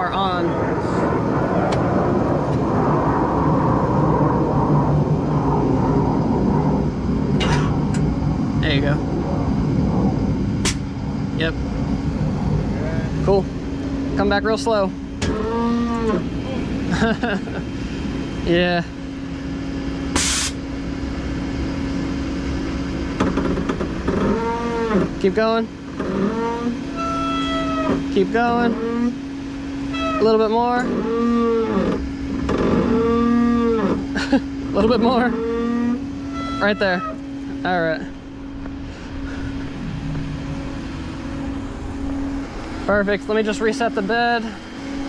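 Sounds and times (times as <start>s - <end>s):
vehicle engine rumbling: 0.0s - 45.0s
short burst of hiss: 20.2s - 20.6s.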